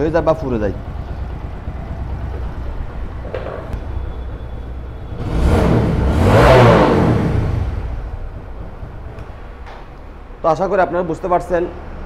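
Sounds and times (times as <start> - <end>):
motorcycle engine revving: 0.0 - 9.5.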